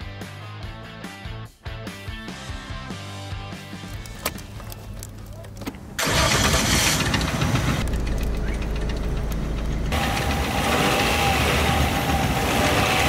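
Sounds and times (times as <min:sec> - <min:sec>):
car engine knocking: 0:06.0 - 0:13.0.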